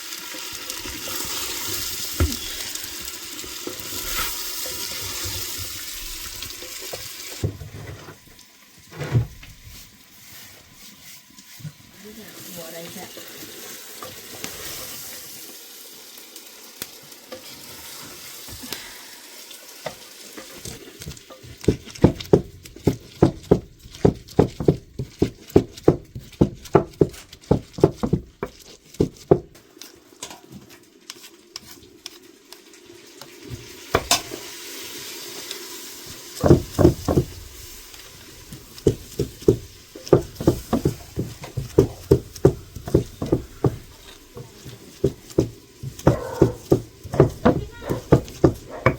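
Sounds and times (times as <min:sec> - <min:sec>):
food sizzling in frying: 0:00.0 - 0:48.9
utensil knocking: 0:21.0 - 0:29.5, 0:36.4 - 0:48.9.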